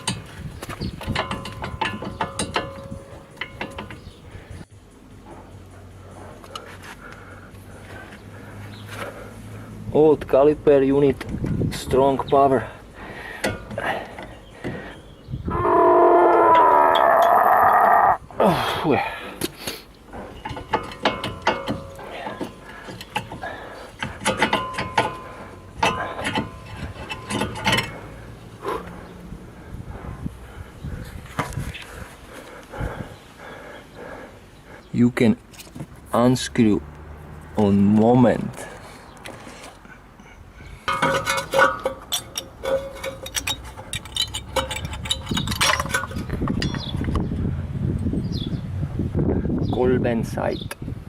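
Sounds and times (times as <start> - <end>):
metal tools clinking and clanking: 0.0 - 4.2, 20.2 - 28.2, 40.8 - 47.2
hand tool metallic clicks: 40.9 - 46.9.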